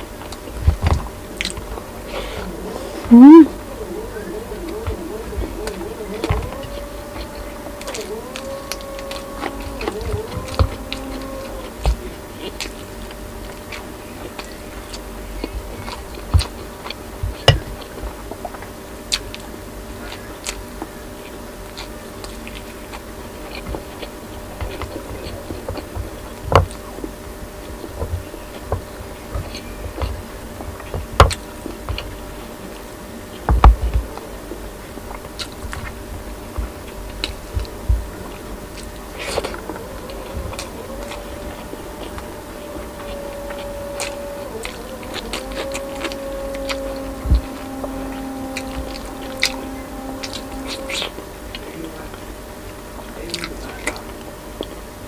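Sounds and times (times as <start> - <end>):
person biting and chewing: 20.1 - 26.8, 33.3 - 47.8, 48.4 - 51.8.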